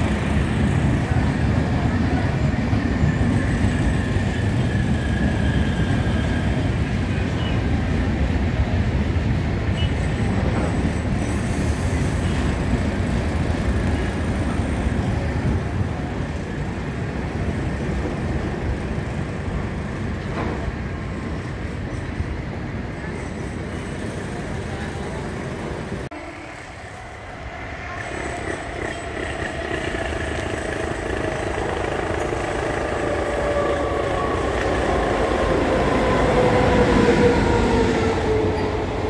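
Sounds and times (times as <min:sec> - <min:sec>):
moving train rumbling: 0:00.0 - 0:39.0.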